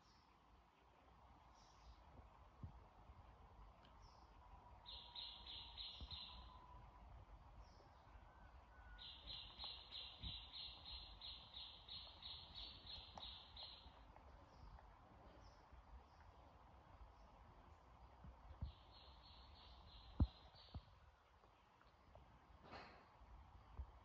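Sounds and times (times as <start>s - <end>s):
faint bird chirping: 0.0s - 2.5s, 3.1s - 23.9s.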